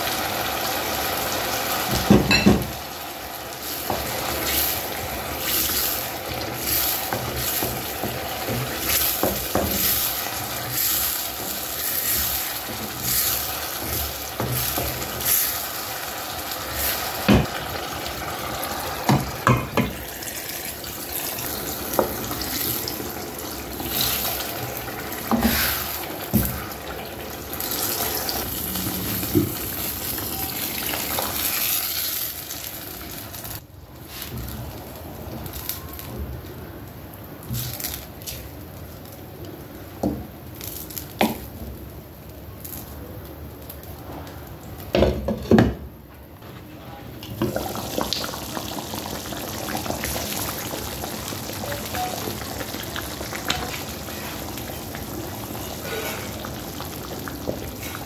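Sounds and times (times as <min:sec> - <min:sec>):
tomato paste sizzling in oil: 0:00.0 - 0:36.4, 0:47.2 - 0:58.0
wooden spoon stirring and scraping: 0:03.6 - 0:15.6, 0:21.9 - 0:26.7.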